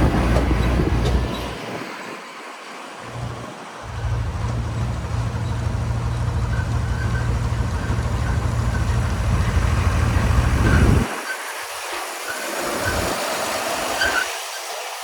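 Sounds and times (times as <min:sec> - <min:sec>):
heavy diesel engine rumbling: 0:00.0 - 0:14.1.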